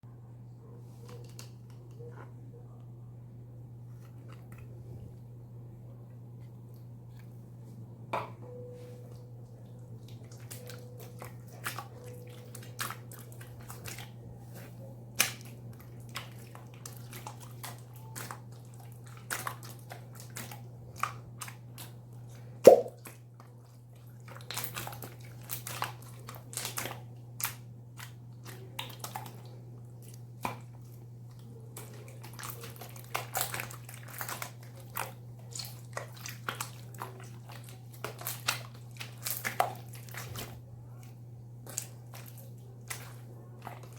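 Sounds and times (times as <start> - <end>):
steady low hum: 0.0 - 16.6
slime clicking and popping: 22.6 - 23.0.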